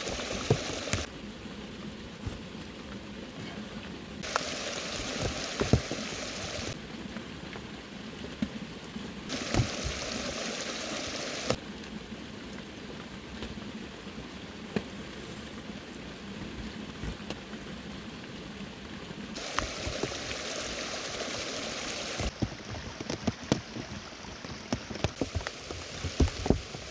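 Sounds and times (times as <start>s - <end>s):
heavy rain falling: 0.0s - 26.9s
sharp pops and clicks: 4.2s - 6.8s.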